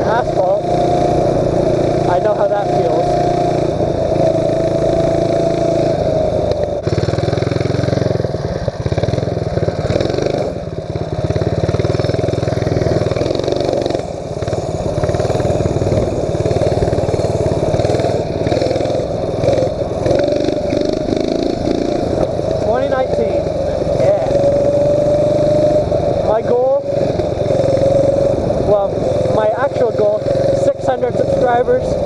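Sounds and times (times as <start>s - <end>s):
mini bike engine running: 0.0s - 32.0s.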